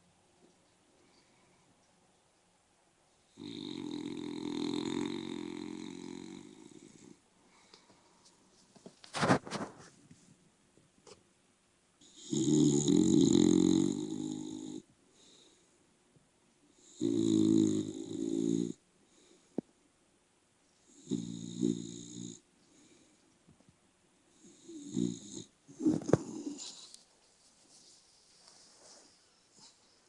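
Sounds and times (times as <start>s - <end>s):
dog snoring: 3.3s - 7.2s, 12.0s - 14.9s, 16.8s - 18.8s, 20.9s - 22.4s, 24.4s - 26.9s.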